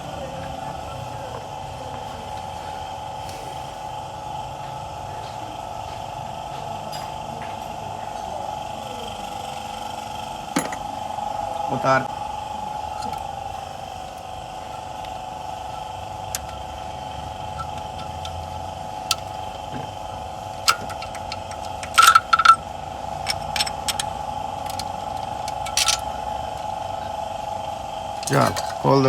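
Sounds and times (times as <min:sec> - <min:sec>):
steady machine hum: 0:00.0 - 0:29.0
tools clinking on engine parts: 0:10.5 - 0:11.0, 0:12.8 - 0:26.9, 0:28.2 - 0:29.0.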